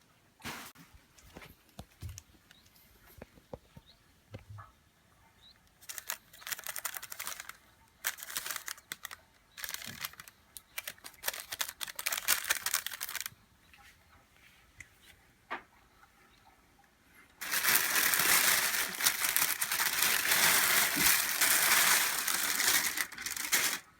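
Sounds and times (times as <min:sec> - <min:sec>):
dry scratching and crinkling: 0:05.8 - 0:13.4, 0:17.4 - 0:23.9.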